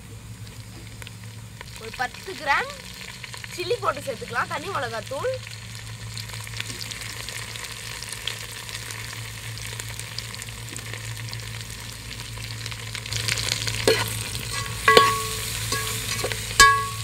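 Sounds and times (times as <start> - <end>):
onions sizzling in hot oil: 0.0 - 17.0
metal spoon clanking against pot: 13.8 - 17.0.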